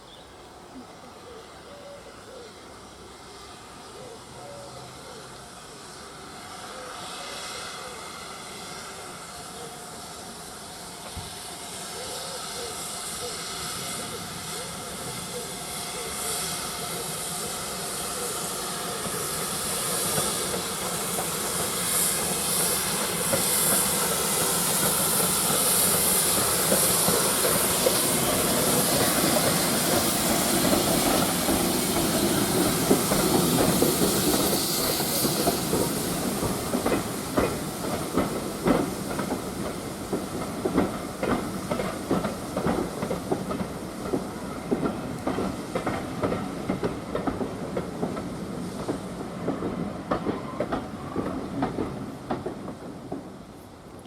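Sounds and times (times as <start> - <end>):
steam hissing: 2.2 - 53.8
train wheels clattering over rail joints: 18.9 - 54.0.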